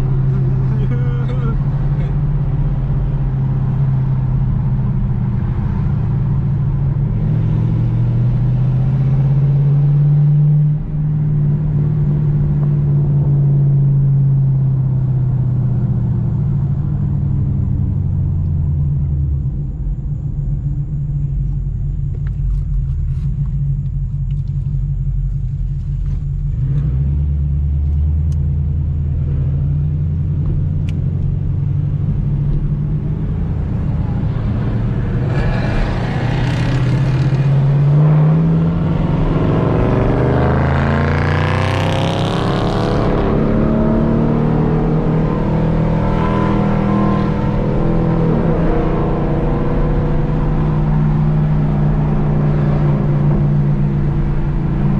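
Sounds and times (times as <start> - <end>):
car engine rumbling: 0.0 - 54.9
high-pitched whine: 31.1 - 54.9.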